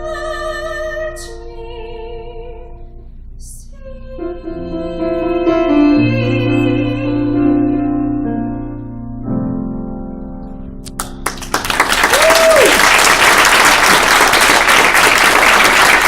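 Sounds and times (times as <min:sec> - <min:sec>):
soprano singing with vibrato: 0:00.0 - 0:02.7, 0:03.4 - 0:07.7
piano accompaniment: 0:04.0 - 0:16.0.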